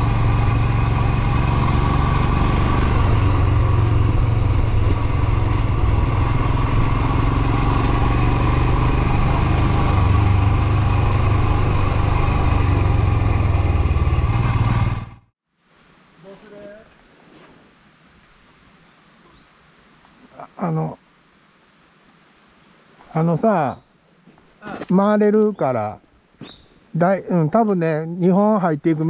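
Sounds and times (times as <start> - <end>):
motorcycle engine running steadily: 0.0 - 15.3.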